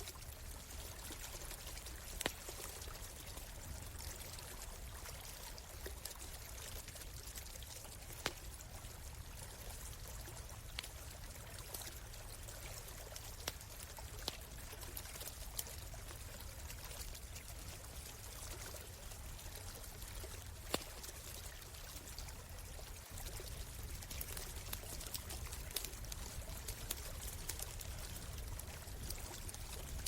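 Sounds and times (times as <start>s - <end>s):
stream flowing: 0.0s - 30.0s
campfire crackling and popping: 0.1s - 4.9s, 5.8s - 30.0s.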